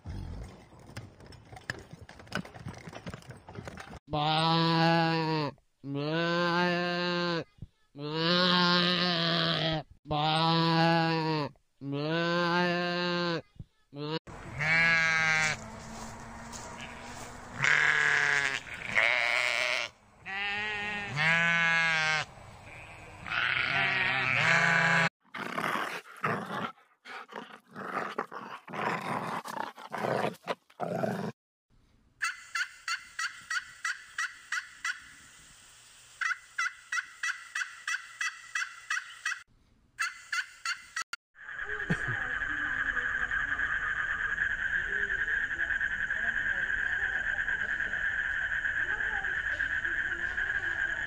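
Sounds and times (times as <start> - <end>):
sheep bleating: 8.0 - 15.6, 16.8 - 25.1.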